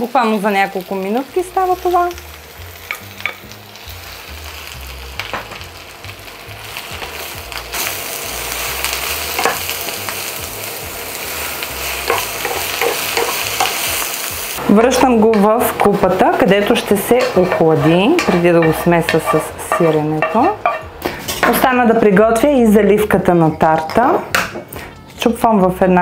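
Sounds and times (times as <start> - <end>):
vegetables sizzling in frying pan: 0.0 - 24.3
utensil knocking on pan: 12.1 - 13.8, 14.8 - 21.7.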